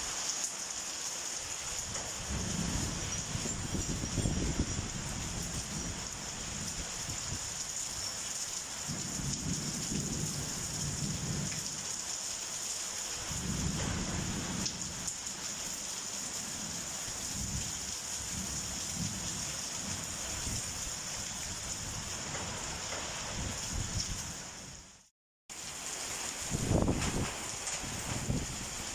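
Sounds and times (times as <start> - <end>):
heavy rain falling: 0.0 - 28.9
low thunder rumbles: 1.9 - 7.4, 8.9 - 11.8, 13.3 - 15.1, 26.5 - 28.8.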